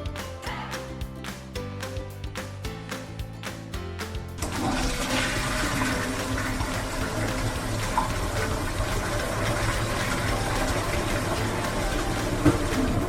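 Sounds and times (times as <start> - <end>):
music: 0.0 - 13.0
steady rushing noise: 5.0 - 13.0.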